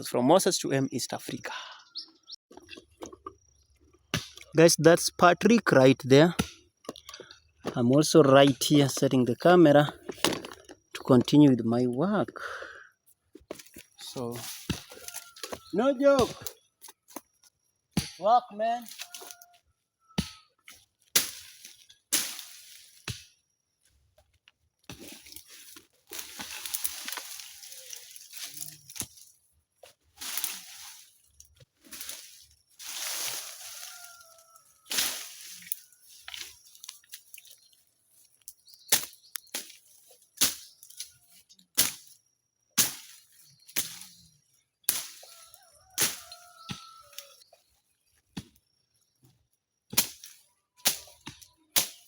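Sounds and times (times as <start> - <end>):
hand tool striking ground: 4.0 - 4.6, 6.2 - 11.5, 13.4 - 19.6, 20.2 - 23.4, 24.2 - 37.7, 38.4 - 42.2, 42.8 - 44.2, 44.8 - 45.4, 46.0 - 47.4, 48.3 - 52.0
brush rustling and scraping: 13.5 - 15.9, 18.8 - 19.4, 20.8 - 23.1, 24.9 - 42.1.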